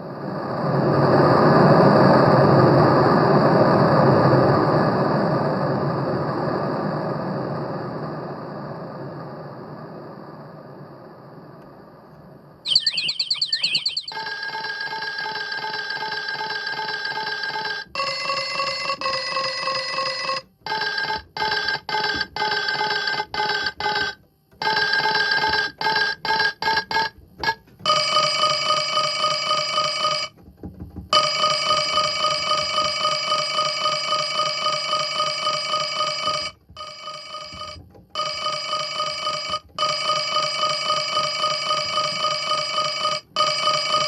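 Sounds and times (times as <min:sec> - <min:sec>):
electronic ringtone tones: 0:12.7 - 0:14.2.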